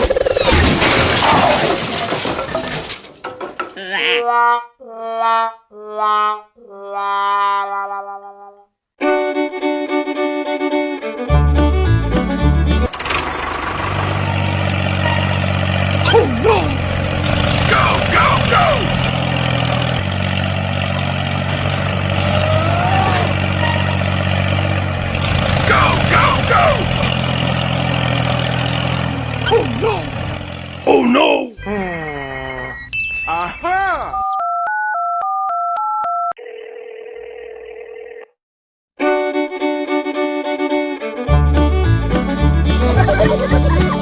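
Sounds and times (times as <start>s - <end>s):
string music: 9.0s - 16.0s, 39.0s - 44.0s
tractor engine running: 11.7s - 31.1s, 41.7s - 44.0s
high squeaky sliding tones: 14.6s - 16.4s, 23.0s - 25.3s.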